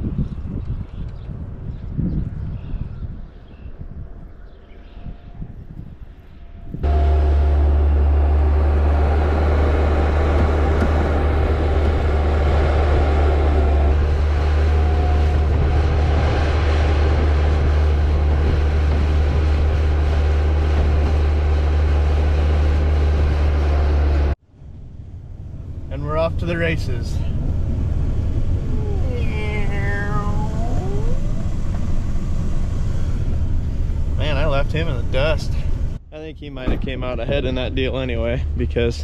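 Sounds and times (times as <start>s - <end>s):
vehicle engine running: 6.8s - 36.0s.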